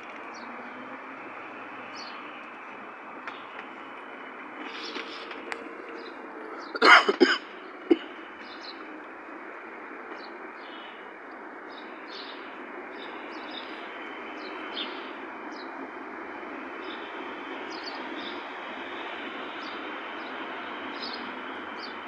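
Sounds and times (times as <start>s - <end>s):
steady background noise: 0.0s - 22.0s
small birds chirping: 0.3s - 6.8s, 7.4s - 22.0s
loud cough-like burst: 6.8s - 8.1s.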